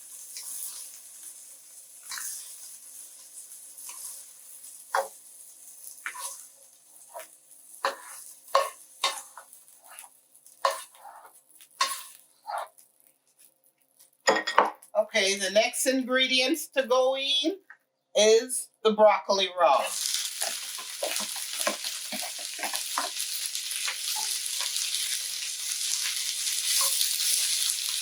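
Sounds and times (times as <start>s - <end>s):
utensil scraping frying pan: 0.0s - 12.8s, 19.8s - 28.0s
oil sizzling faintly: 0.0s - 14.9s, 19.7s - 28.0s.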